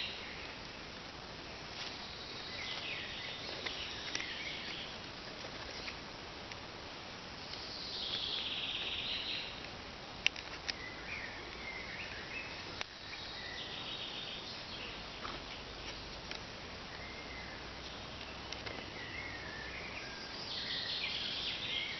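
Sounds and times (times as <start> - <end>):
faint insect sounds: 0.0 - 21.9
birds chirping and singing: 1.8 - 6.1, 7.4 - 9.6, 10.6 - 16.1, 16.9 - 21.9.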